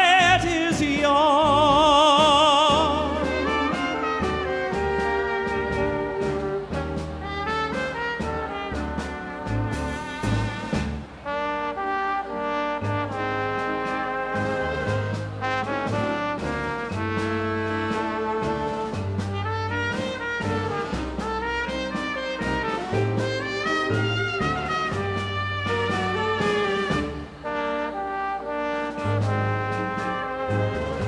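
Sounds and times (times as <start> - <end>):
low bass notes: 0.0 - 11.2, 14.3 - 27.5
brass section playing melody: 0.0 - 31.0.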